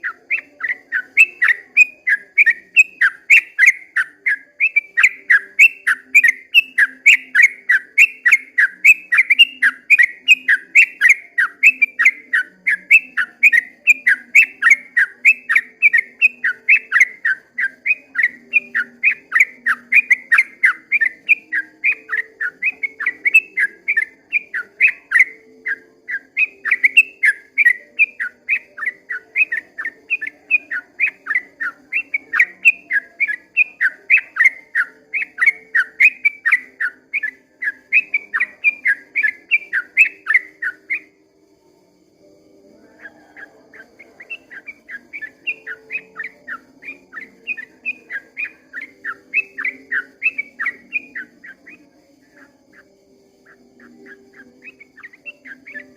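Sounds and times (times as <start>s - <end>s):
bird singing sharp whistled notes: 0.0s - 41.2s, 42.7s - 55.9s.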